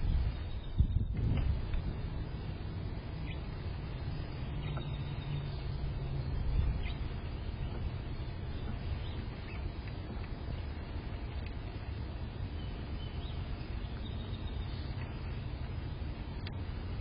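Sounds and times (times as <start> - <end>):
steady low rumble: 0.0 - 17.0
faint bird chirps: 0.2 - 1.2, 4.3 - 9.8, 12.4 - 15.5.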